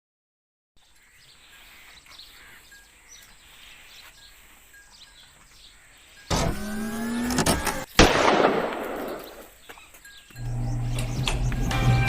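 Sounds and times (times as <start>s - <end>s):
bird chirps: 0.8s - 12.0s.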